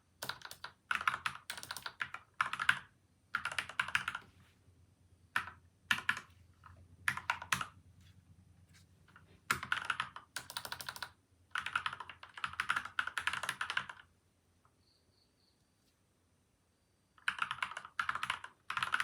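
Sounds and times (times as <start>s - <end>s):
typing on mechanical keyboard: 0.2s - 4.3s, 5.4s - 7.8s, 9.5s - 14.1s, 17.2s - 19.0s.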